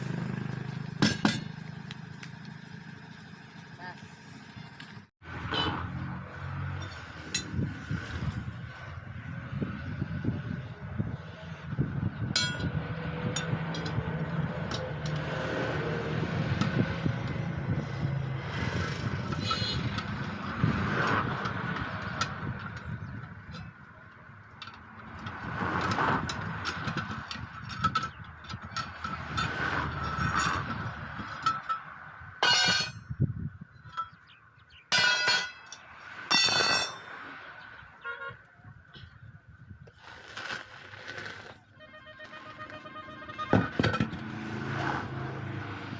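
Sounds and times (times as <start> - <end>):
sharp metallic clicks and knocks: 19.2 - 33.0
vehicle horn blasts: 41.8 - 43.7.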